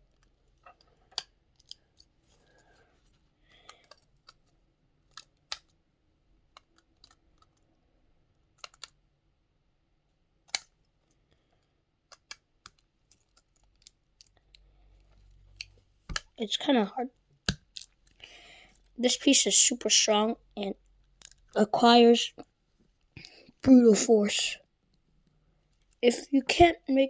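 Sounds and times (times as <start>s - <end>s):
plastic building pieces clicking: 0.1s - 2.7s, 3.5s - 5.8s, 6.4s - 7.7s, 8.4s - 9.0s, 10.4s - 11.2s, 12.0s - 16.3s, 17.4s - 18.2s, 21.0s - 21.6s.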